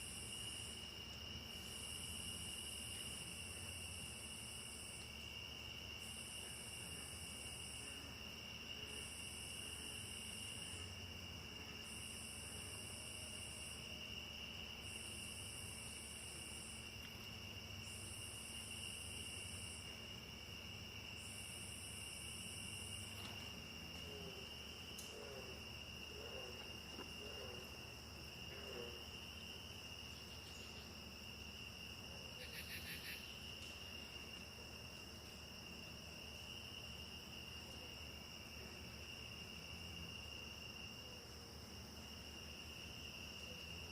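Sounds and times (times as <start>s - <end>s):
rapid insect trill: 0.0s - 43.9s.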